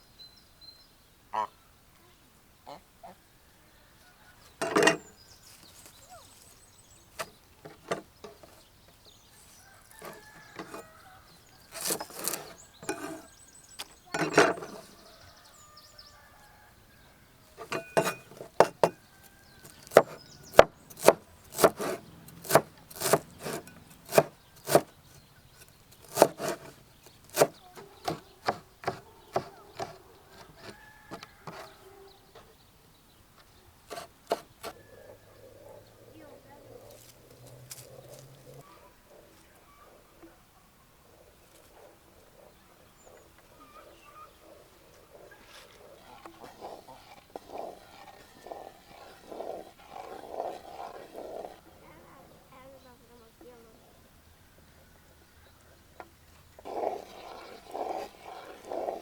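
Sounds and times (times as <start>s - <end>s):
chopping wood knocks: 19.6s - 24.9s, 26.0s - 31.7s, 33.9s - 34.7s.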